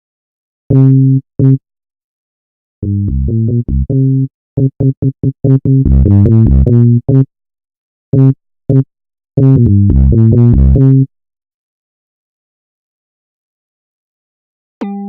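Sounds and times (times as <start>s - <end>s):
low synthesizer notes: 2.8s - 7.2s, 9.4s - 10.9s.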